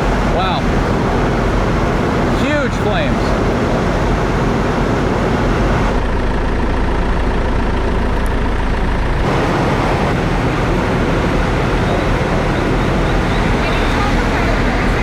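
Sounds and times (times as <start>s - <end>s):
building fire roaring: 0.0s - 15.0s.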